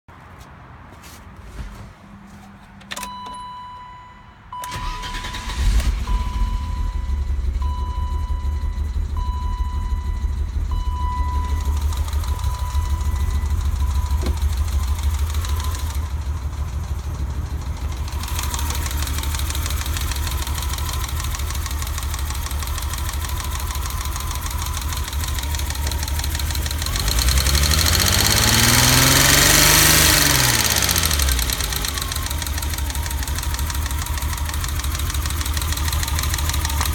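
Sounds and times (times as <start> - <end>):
car engine cranking and idling: 2.4 - 36.9
repeating warning beep: 3.1 - 16.0
engine revving: 4.6 - 36.9.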